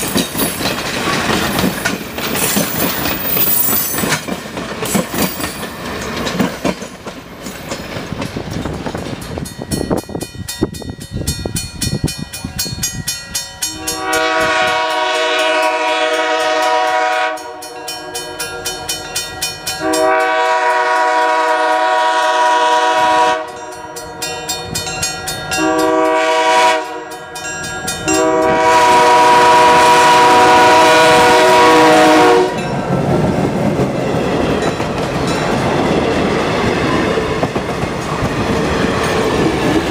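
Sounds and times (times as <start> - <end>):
train wheels clicking over rail joints: 0.0 - 20.1, 32.6 - 39.9
locomotive air horn: 13.7 - 17.8, 19.8 - 23.6, 25.6 - 27.2, 28.1 - 32.6.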